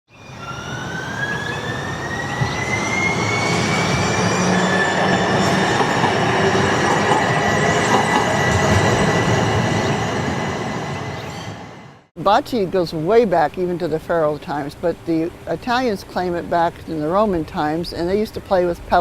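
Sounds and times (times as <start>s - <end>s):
streetcar rumble: 0.1s - 12.1s
streetcar wheels squealing: 0.2s - 11.7s.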